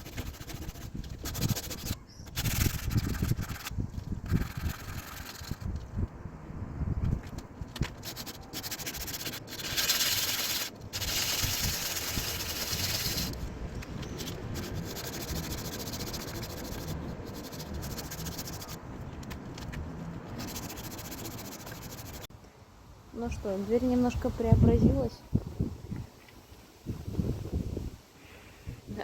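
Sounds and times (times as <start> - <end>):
sandpaper scrubbing on metal: 0.0 - 5.7, 7.8 - 13.4, 14.0 - 18.8, 20.2 - 22.3.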